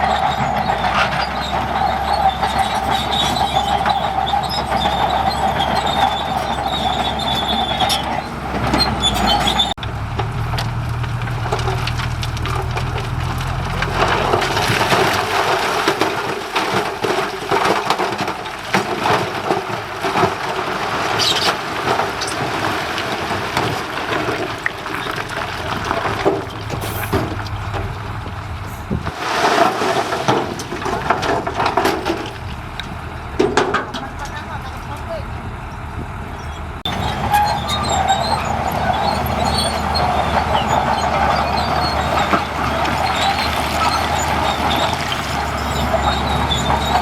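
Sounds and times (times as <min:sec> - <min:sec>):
machinery high squeal: 0:00.0 - 0:09.8, 0:36.3 - 0:47.0
machinery clanking and rattling: 0:00.0 - 0:47.0.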